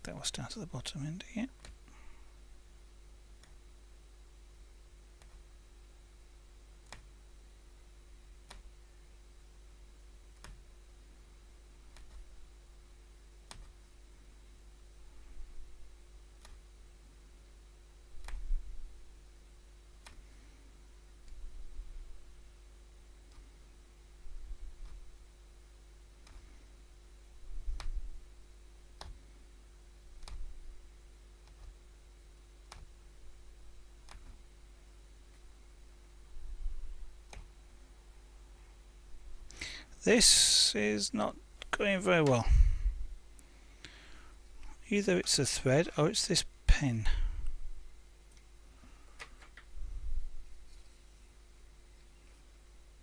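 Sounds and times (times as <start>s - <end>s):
faint steady hum: 0.0s - 53.0s
punch needle clicking through fabric: 10.3s - 10.6s, 11.9s - 12.3s, 13.5s - 13.8s, 30.2s - 30.6s, 31.4s - 31.8s.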